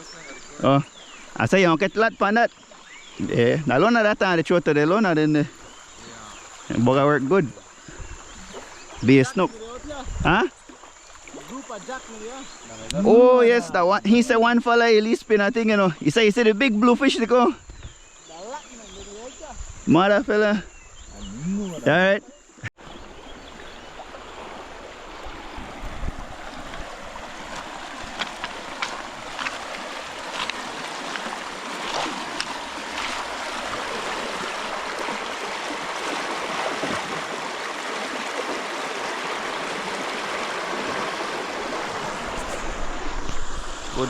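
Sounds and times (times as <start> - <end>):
river water rushing: 22.8 - 44.0.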